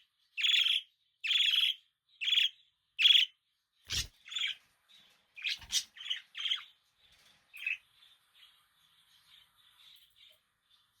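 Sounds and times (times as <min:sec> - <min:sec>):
faint budgerigar chirps: 0:00.4 - 0:04.6, 0:05.4 - 0:06.8.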